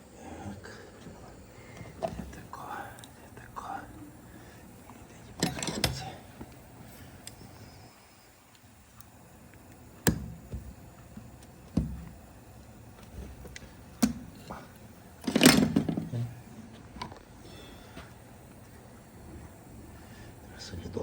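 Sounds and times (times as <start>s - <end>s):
metal parts clattering and scraping: 5.4s - 6.0s.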